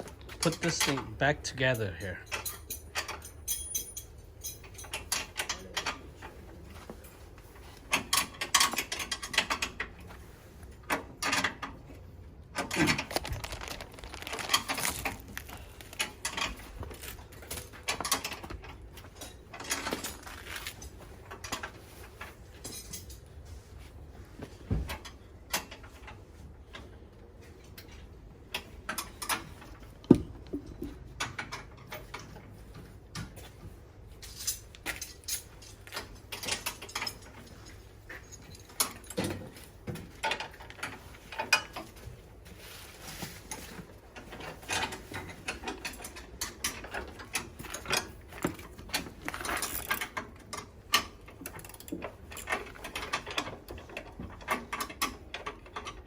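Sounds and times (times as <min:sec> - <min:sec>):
tools clicking and knocking: 0:00.0 - 0:06.4, 0:07.9 - 0:10.0, 0:27.8 - 0:32.5, 0:34.2 - 0:42.0, 0:43.5 - 0:56.0.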